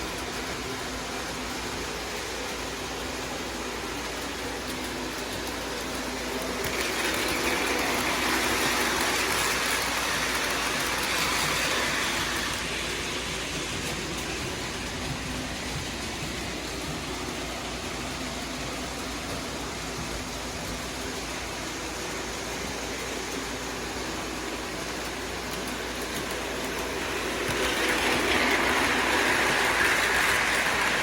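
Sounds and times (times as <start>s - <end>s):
freight train rolling past: 0.0s - 31.0s.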